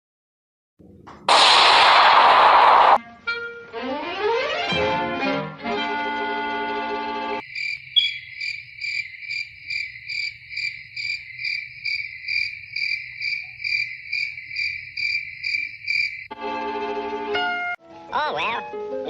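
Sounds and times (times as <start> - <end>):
crickets chirping: 7.4 - 16.4.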